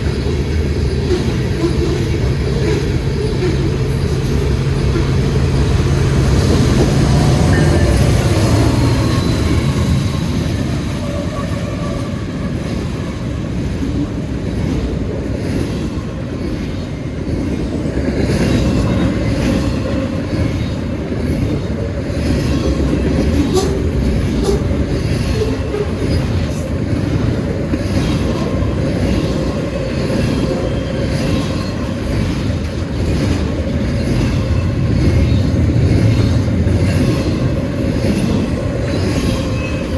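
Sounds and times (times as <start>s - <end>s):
freight train rumbling past: 0.0s - 39.9s
wheels clicking over rail joints: 13.9s - 39.9s.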